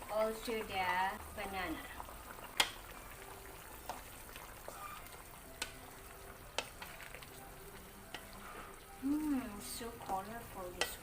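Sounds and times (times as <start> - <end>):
spoon clicking against pot: 2.6 - 2.8, 10.8 - 11.0.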